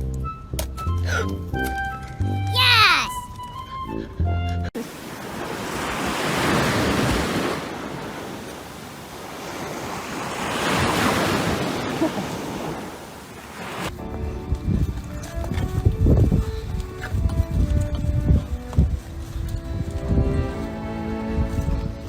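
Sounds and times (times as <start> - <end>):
ocean surf washing in: 4.8 - 13.9.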